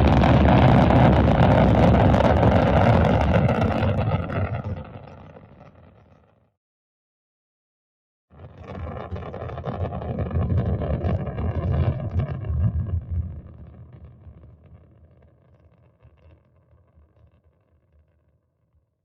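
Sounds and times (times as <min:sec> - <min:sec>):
rocket launch rumble: 0:00.0 - 0:05.4.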